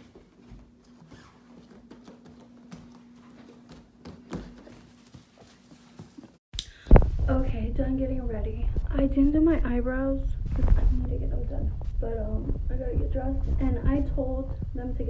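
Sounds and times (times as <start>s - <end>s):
low hum: 6.6s - 15.0s.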